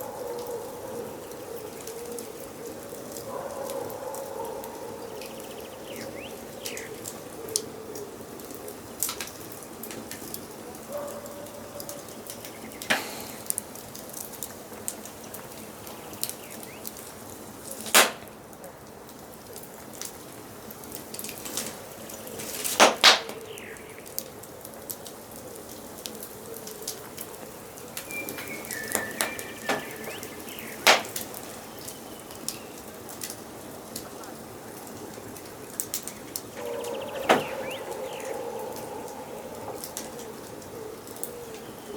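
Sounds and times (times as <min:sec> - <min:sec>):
forest birds calling: 0:00.0 - 0:18.2, 0:20.9 - 0:24.5, 0:25.3 - 0:41.9
wood fire crackling: 0:00.0 - 0:41.9
loud fire pops: 0:17.8 - 0:18.4, 0:22.4 - 0:23.5, 0:28.0 - 0:31.6
short whistled bird call: 0:28.1 - 0:30.3.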